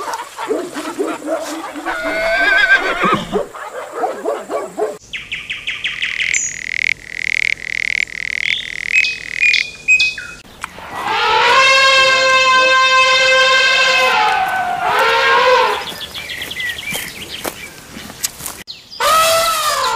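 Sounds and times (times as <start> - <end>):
animal chirping: 1.8 - 3.5, 5.1 - 10.4.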